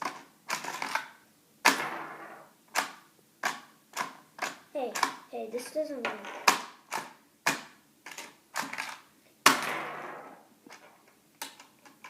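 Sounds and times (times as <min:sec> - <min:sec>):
plastic toy pieces clicking: 0:02.8 - 0:05.2.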